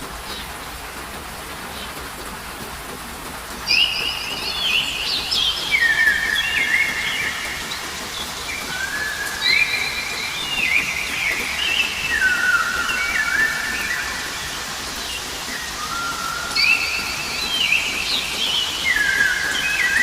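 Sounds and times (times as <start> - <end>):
steady rain: 0.0 - 20.0
songbird whistling: 3.7 - 7.8, 8.5 - 14.7, 15.5 - 20.0.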